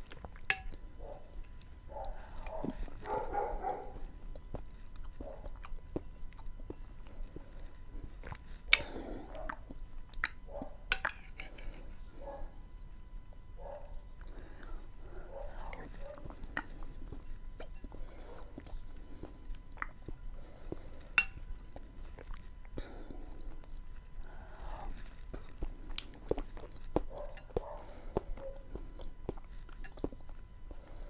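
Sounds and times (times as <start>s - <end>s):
person chewing food: 0.0s - 31.0s
sharp mouth clicks: 10.2s - 10.4s.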